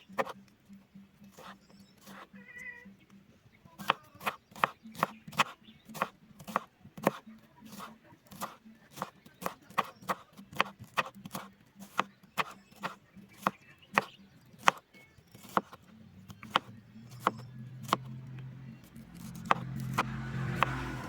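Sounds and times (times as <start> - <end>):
knife chopping on cutting board: 0.0 - 0.4, 3.8 - 18.1, 19.2 - 20.8.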